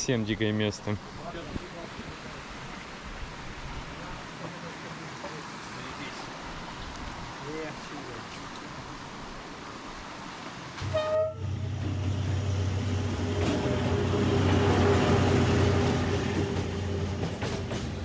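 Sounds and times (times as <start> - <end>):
train horn toot: 10.8 - 11.8
diesel locomotive drone: 10.8 - 18.0.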